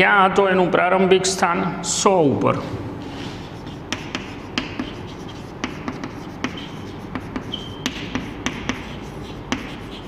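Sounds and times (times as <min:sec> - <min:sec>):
chalk tapping and scraping on blackboard: 0:03.1 - 0:10.0
chalk squeak: 0:03.2 - 0:10.0.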